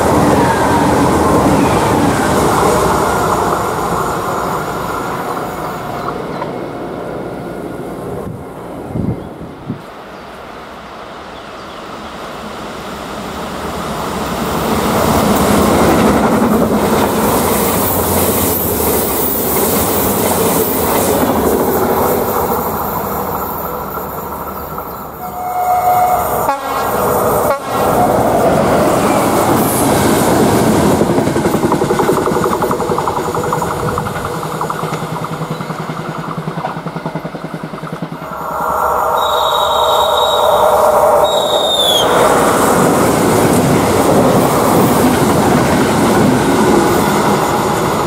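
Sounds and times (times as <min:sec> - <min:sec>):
train rushing past: 0:00.0 - 0:48.0
train horn note: 0:25.2 - 0:28.2, 0:38.3 - 0:42.0
coaches clattering over rail joints: 0:29.4 - 0:38.2.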